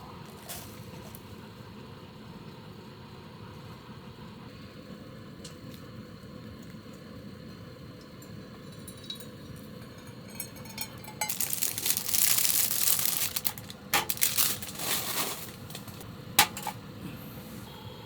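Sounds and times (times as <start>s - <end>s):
small hard objects rattling: 10.2s - 16.0s.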